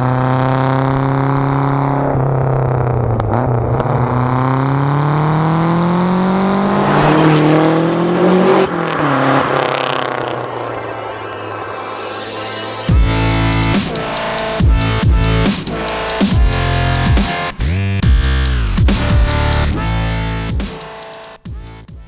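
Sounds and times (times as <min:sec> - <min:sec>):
car engine pulling under load: 0:06.6 - 0:15.9.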